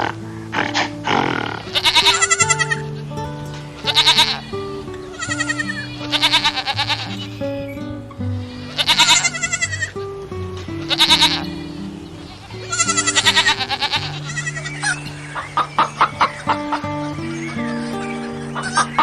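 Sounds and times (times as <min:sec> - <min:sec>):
goat bleating: 0:00.0 - 0:02.9, 0:03.8 - 0:04.5, 0:05.1 - 0:07.4, 0:08.6 - 0:10.0, 0:10.8 - 0:11.7, 0:12.3 - 0:15.0
background music: 0:00.0 - 0:19.0.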